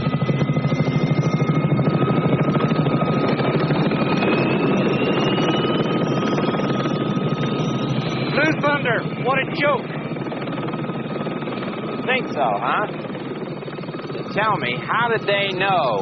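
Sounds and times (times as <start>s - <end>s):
helicopter rotor beating: 0.0s - 16.0s
turbine whine: 0.0s - 16.0s.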